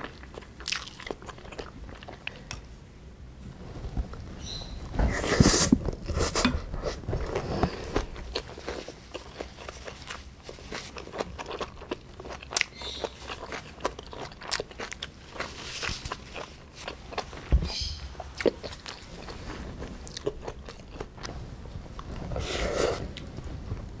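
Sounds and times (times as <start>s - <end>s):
chewing crunchy food: 0.0s - 2.6s, 6.1s - 21.4s.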